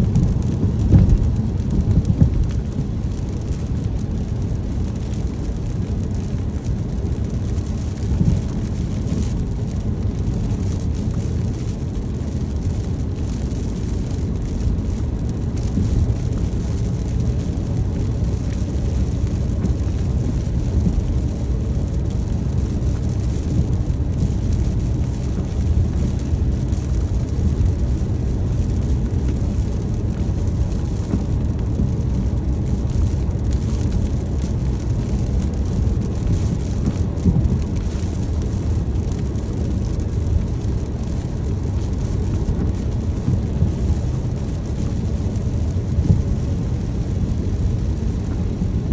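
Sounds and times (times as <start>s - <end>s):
car road and engine rumble: 0.0s - 48.9s
rain hissing on car: 0.0s - 48.9s.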